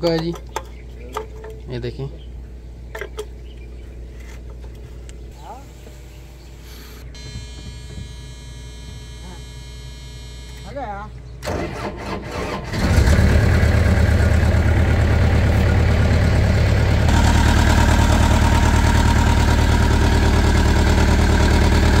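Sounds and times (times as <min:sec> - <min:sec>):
loader engine idling: 0:11.1 - 0:22.0.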